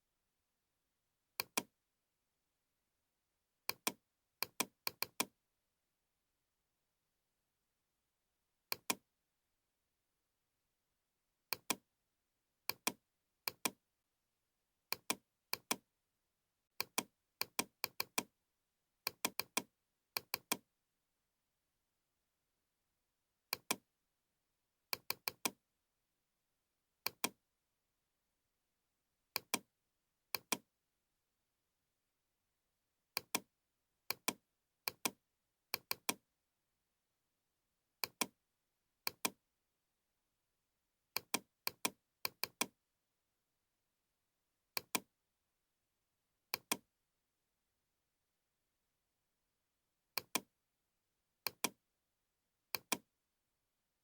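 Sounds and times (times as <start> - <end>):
computer mouse clicks: 1.4 - 1.7, 3.7 - 5.3, 8.7 - 9.0, 11.5 - 11.8, 12.7 - 13.8, 14.9 - 15.8, 16.8 - 18.3, 19.1 - 20.6, 23.5 - 23.8, 24.9 - 25.6, 27.0 - 27.4, 29.4 - 29.6, 30.4 - 30.6, 33.2 - 33.5, 34.1 - 35.2, 35.8 - 36.2, 38.0 - 38.4, 39.1 - 39.4, 41.2 - 42.7, 44.8 - 45.1, 46.5 - 46.8, 50.2 - 50.5, 51.4 - 51.8, 52.7 - 53.0.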